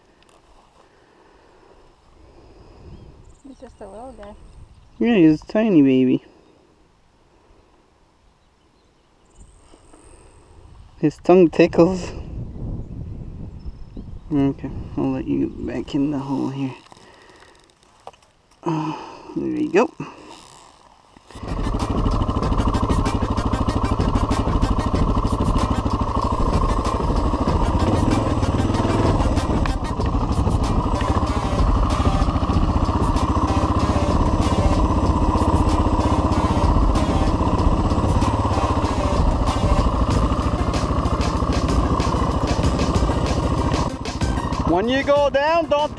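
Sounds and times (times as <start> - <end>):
motorcycle engine running: 21.3 - 45.9.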